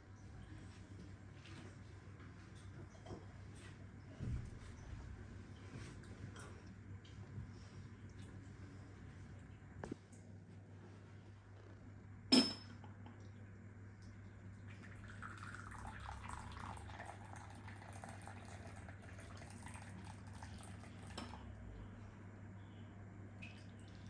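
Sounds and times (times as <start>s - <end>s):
kitchenware clinking: 12.3s - 12.8s
water running: 14.0s - 21.5s.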